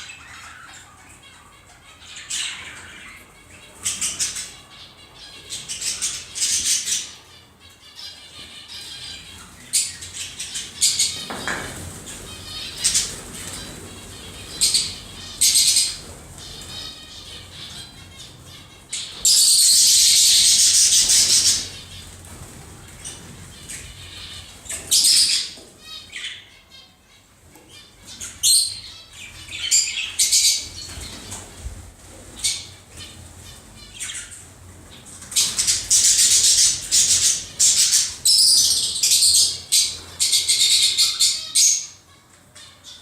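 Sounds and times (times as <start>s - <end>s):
cage birds chirping and squawking: 0.0s - 43.0s.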